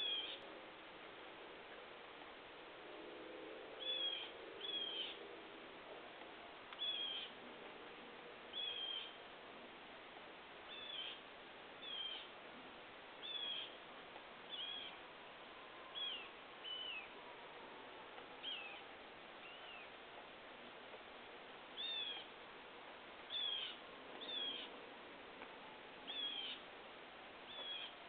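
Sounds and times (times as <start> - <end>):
faint steady hiss: 0.0 - 28.0.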